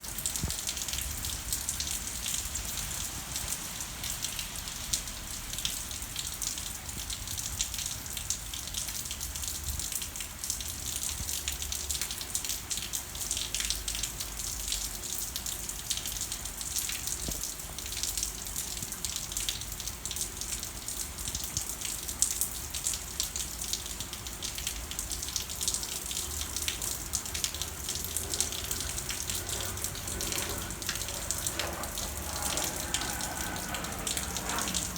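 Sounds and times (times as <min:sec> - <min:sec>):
steady rain falling: 0:00.0 - 0:34.9
low rumble: 0:26.4 - 0:34.9.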